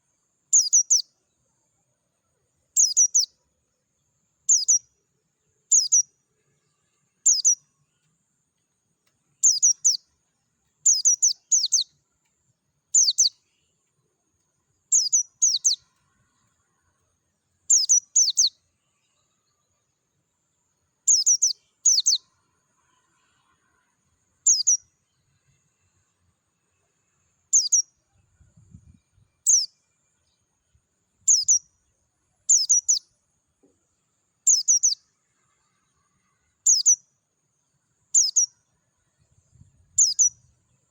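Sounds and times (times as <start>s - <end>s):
bird high chirps: 0.5s - 1.2s, 2.7s - 3.4s, 4.4s - 5.0s, 5.7s - 6.2s, 7.2s - 8.0s, 9.4s - 10.1s, 10.8s - 12.0s, 12.9s - 13.5s, 14.8s - 16.5s, 17.7s - 19.9s, 21.0s - 22.3s, 24.4s - 25.0s, 27.5s - 30.4s, 31.2s - 33.1s, 34.4s - 35.0s, 36.6s - 37.0s, 38.1s - 38.7s, 39.5s - 40.6s.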